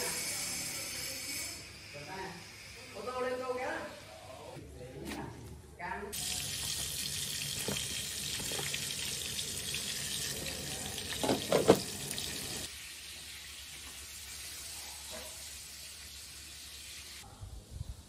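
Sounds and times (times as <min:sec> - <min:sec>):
tap water running into sink: 0:06.2 - 0:14.0.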